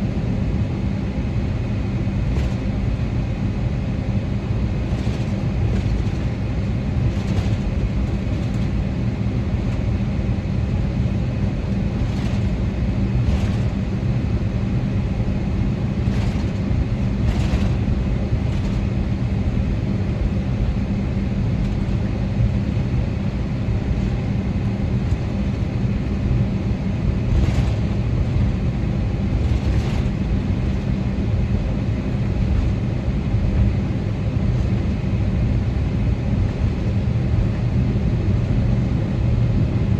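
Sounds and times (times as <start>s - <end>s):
aircraft cabin engine rumble: 0.0s - 39.9s
constant cabin hum: 0.0s - 39.9s.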